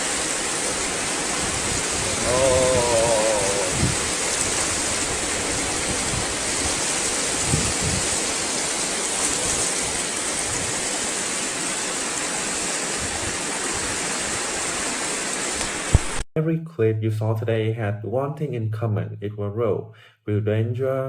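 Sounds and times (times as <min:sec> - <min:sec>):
water rushing: 0:00.0 - 0:16.2.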